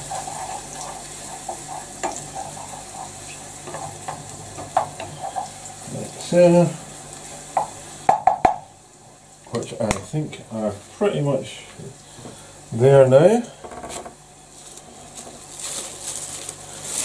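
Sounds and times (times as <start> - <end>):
utensil scraping a pan: 0.0 - 5.6
mushrooms sizzling in a pan: 0.0 - 12.0.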